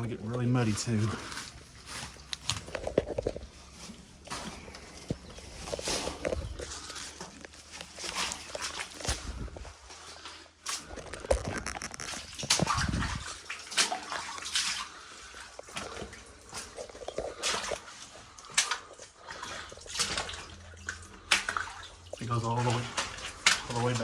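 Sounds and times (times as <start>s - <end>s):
squelching steps in mud: 0.0s - 24.0s
water sloshing: 0.0s - 24.0s
scraping: 0.6s - 13.4s
water dripping: 4.2s - 24.0s.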